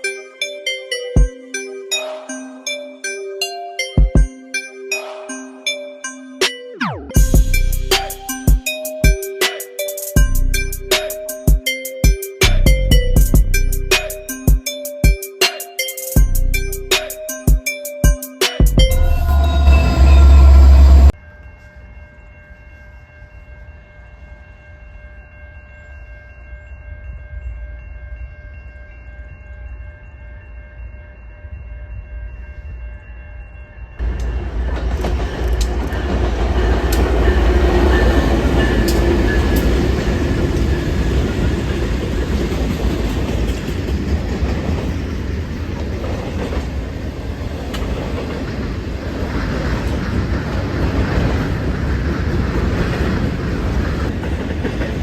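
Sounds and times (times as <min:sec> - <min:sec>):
loud low rumble: 0:18.8 - 0:21.2
train passing close by: 0:18.8 - 0:22.6, 0:33.9 - 0:55.0.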